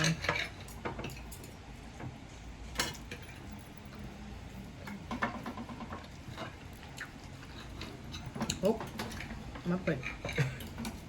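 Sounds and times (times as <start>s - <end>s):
cutlery clicking against plates: 0.0s - 1.6s, 2.7s - 3.6s, 4.8s - 11.0s.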